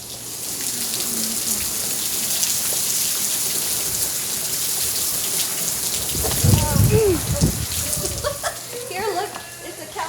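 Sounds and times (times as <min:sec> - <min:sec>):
heavy rain falling: 0:00.0 - 0:09.4.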